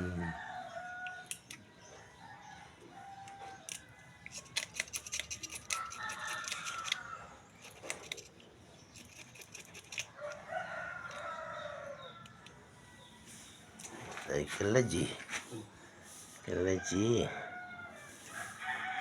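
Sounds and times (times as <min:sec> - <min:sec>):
rooster crowing: 0:00.0 - 0:01.3, 0:02.0 - 0:04.6, 0:05.3 - 0:07.4, 0:10.1 - 0:13.4, 0:16.0 - 0:19.0.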